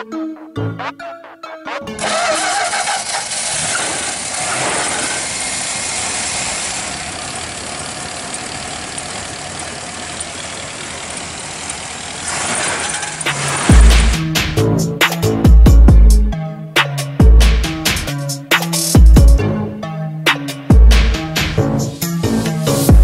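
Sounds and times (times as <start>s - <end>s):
car engine idling: 2.0s - 14.7s.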